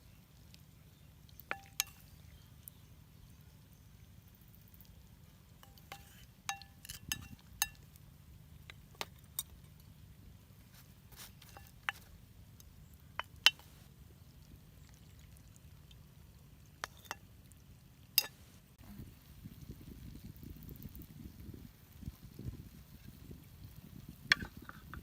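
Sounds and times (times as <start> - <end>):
utensils clinking on cookware: 1.5 - 2.0, 5.6 - 7.8, 18.2 - 18.4.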